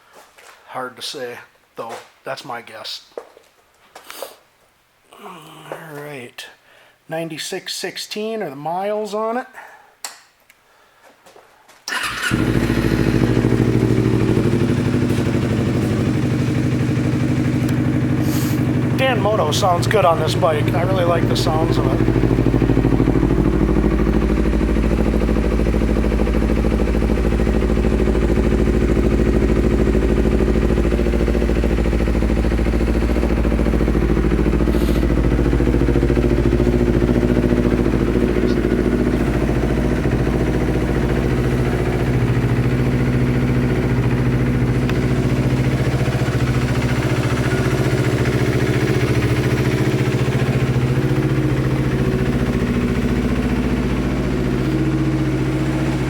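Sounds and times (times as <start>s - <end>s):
motorcycle engine idling: 11.9s - 56.0s.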